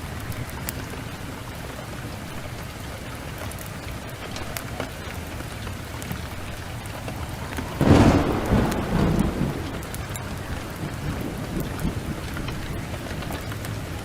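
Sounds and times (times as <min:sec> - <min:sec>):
steady rain: 0:00.0 - 0:14.0
thunderclap rumbling: 0:03.8 - 0:14.0.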